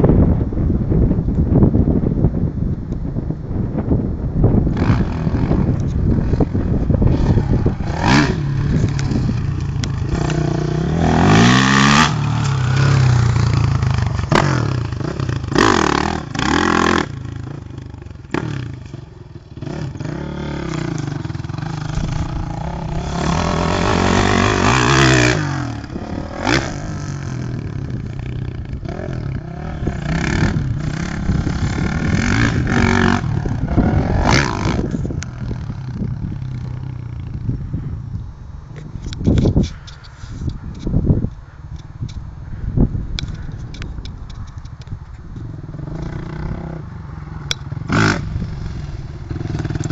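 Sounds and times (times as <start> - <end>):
motocross bike engine revving: 4.6 - 37.6, 45.5 - 49.9.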